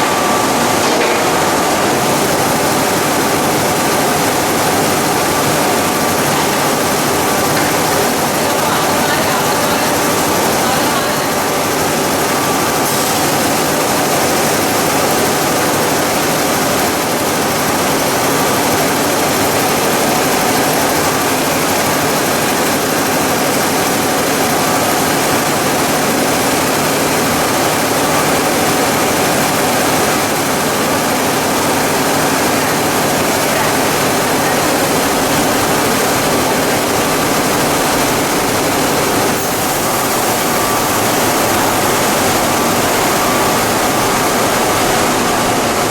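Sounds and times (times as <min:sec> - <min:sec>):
loud steady machinery noise: 0:00.0 - 0:45.9.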